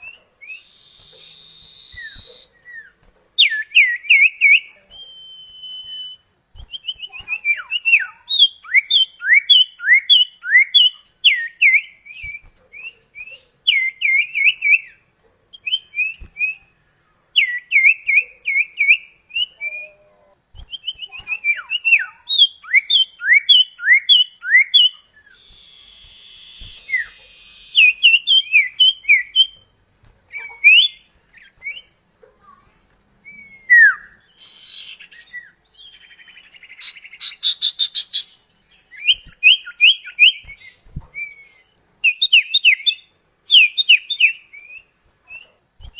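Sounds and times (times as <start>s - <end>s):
bird singing sharp chirps: 0.0s - 15.0s, 17.4s - 29.6s
faint steady high tone: 0.0s - 36.7s.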